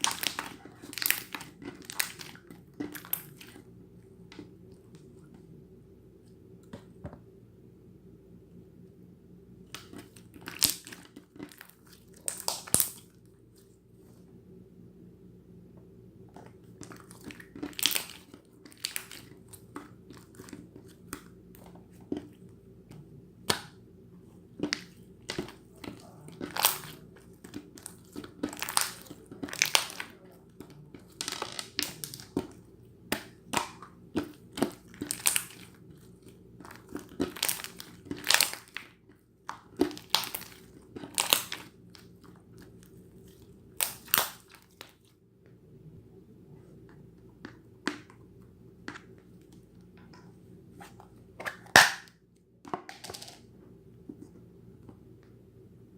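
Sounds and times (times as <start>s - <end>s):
slime crackling and popping: 0.0s - 3.6s, 9.7s - 13.2s, 16.7s - 22.2s, 24.6s - 45.1s.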